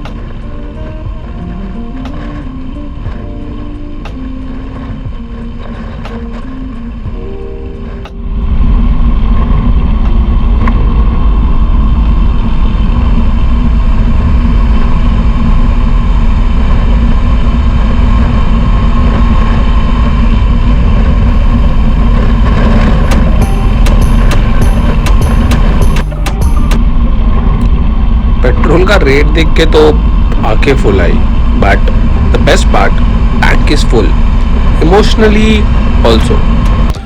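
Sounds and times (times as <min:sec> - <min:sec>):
soft background music: 0:00.0 - 0:14.7, 0:16.4 - 0:37.0
motorcycle engine running: 0:08.8 - 0:37.0.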